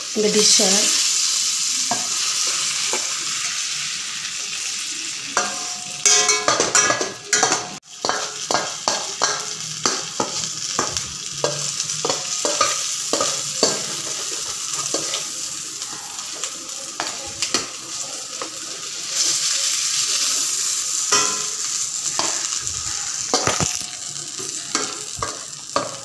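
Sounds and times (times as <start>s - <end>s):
frying in oil sizzling: 0.0s - 26.0s
spoon scraping and knocking pan: 5.4s - 17.8s, 21.1s - 26.0s.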